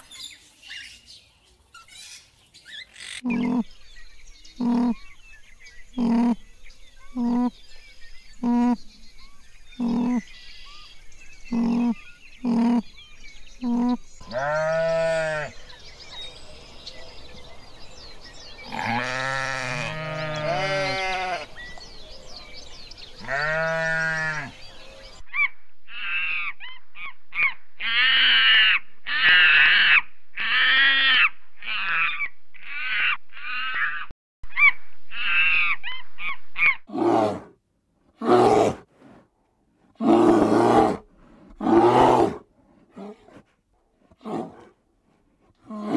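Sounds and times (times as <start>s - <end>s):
high-pitched animal calls: 2.8s - 3.7s, 4.6s - 5.0s, 6.0s - 6.4s, 9.8s - 10.3s, 11.5s - 12.9s
sheep bleating: 13.6s - 15.5s, 18.7s - 21.5s, 23.2s - 24.6s.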